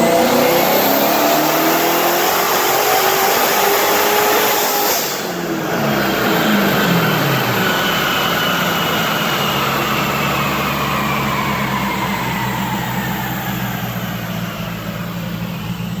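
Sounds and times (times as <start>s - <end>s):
car engine idling: 5.2s - 16.0s
drivetrain and rollers whining: 5.3s - 16.0s.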